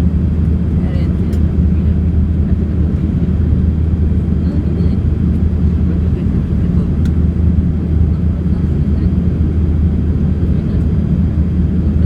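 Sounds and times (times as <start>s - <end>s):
airliner cabin rumble of airflow and engines: 0.0s - 12.0s.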